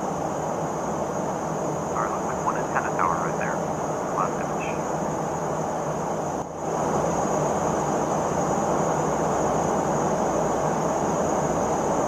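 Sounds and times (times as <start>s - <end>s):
thin high whine: 0.0s - 12.0s
jet cabin rushing noise: 0.9s - 9.2s.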